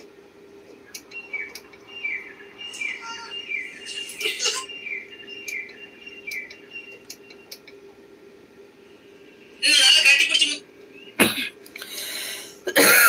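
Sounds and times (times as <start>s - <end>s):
steady hum: 0.0s - 13.0s
small bird chirping: 0.9s - 7.6s
sharp clicks: 6.3s - 7.8s.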